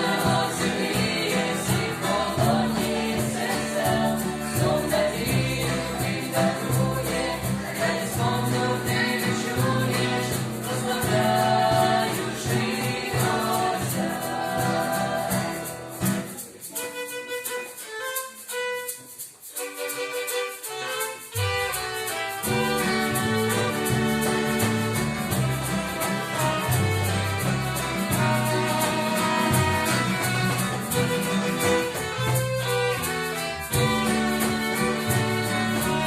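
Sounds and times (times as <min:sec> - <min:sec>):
band playing with violin: 0:00.0 - 0:16.1, 0:16.7 - 0:36.0
person singing: 0:00.0 - 0:16.2, 0:32.9 - 0:36.0.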